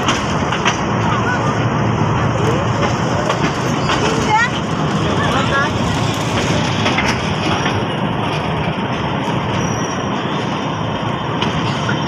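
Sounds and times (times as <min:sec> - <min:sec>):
train carriage rumbling: 0:00.0 - 0:12.0
faint high wheel squeal: 0:09.4 - 0:10.5.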